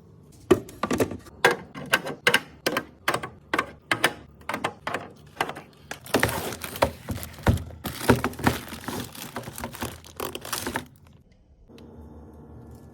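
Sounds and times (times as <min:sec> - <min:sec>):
food packaging crinkling: 0:05.3 - 0:11.2.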